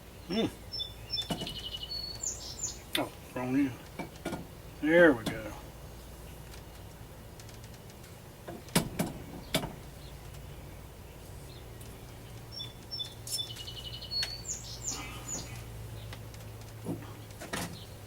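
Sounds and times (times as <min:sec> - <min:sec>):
small bird chirping: 0:00.1 - 0:03.9, 0:08.6 - 0:18.0.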